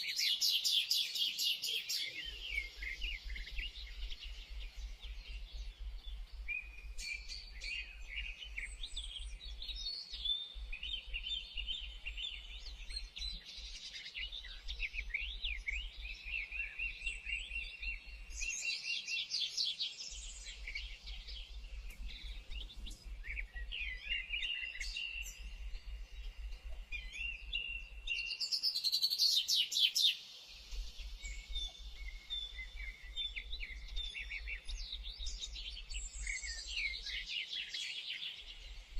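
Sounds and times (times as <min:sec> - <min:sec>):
songbirds chirping and singing: 0:00.0 - 0:38.9
low steady hum: 0:20.5 - 0:28.0.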